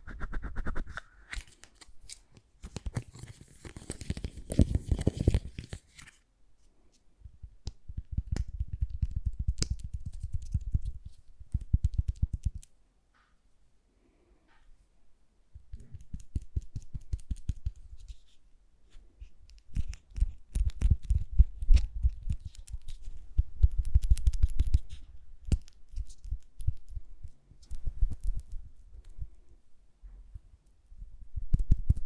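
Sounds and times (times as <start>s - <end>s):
crackling and scratching: 0.0s - 6.2s, 8.0s - 12.7s, 15.6s - 29.5s.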